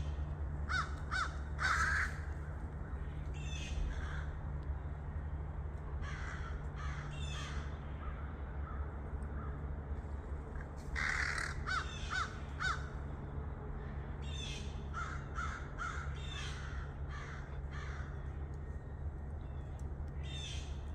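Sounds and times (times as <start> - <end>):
steady low hum: 0.0 - 20.9
crows cawing harshly: 0.7 - 2.5, 3.9 - 4.4, 6.0 - 9.6, 10.9 - 12.9, 14.9 - 18.2.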